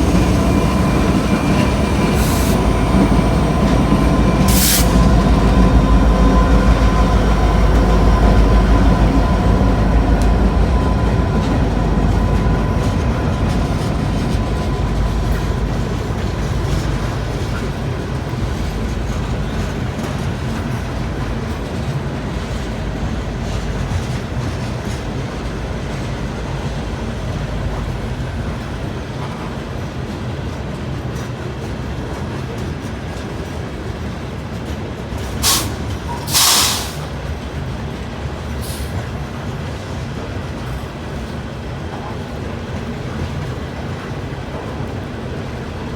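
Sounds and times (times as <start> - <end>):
train rumbling past: 0.0 - 45.9
loud hissing bursts: 4.5 - 5.2, 35.4 - 37.1.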